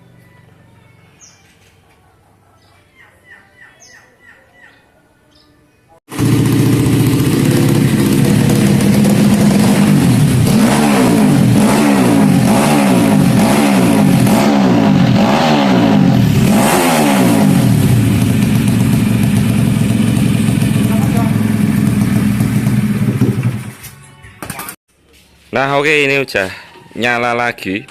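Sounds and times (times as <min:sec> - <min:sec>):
motorcycle engine revving: 0:06.1 - 0:23.9.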